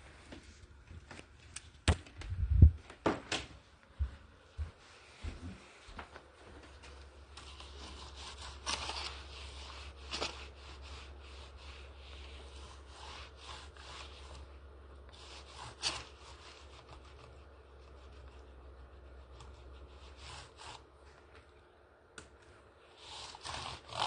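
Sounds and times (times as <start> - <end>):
steady low hum: 0.0 - 24.0
rubbing and wiping on car surface: 7.4 - 20.8.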